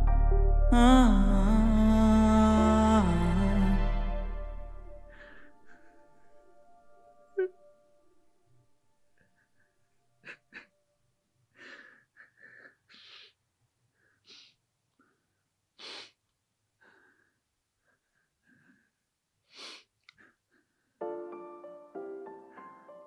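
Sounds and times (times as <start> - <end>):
man sniffing and gasping: 11.6 - 13.4, 14.0 - 14.6, 15.8 - 16.2, 16.8 - 20.8.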